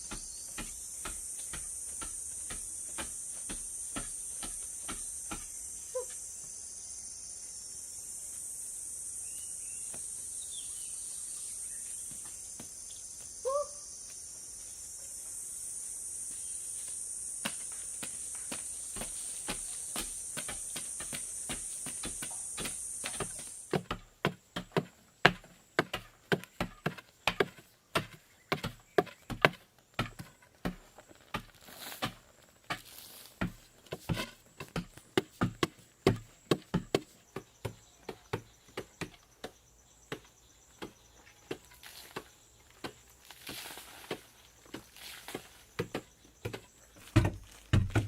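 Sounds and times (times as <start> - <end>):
hand tool chopping wood: 0.0 - 6.1, 17.4 - 48.0
steady high hiss: 0.0 - 23.7.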